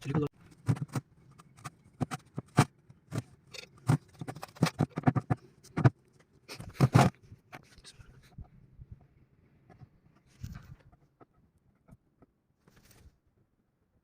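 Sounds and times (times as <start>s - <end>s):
metal tools clicking and scraping: 3.4s - 5.0s.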